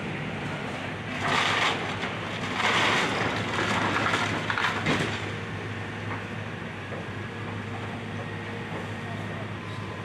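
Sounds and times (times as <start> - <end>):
wood and debris crunching: 1.1 - 5.3.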